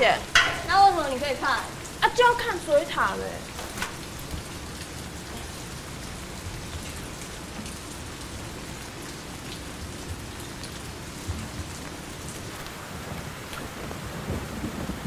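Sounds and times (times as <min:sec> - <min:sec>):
steady rain: 0:00.0 - 0:15.0
drops ticking on hard surfaces: 0:00.3 - 0:01.0.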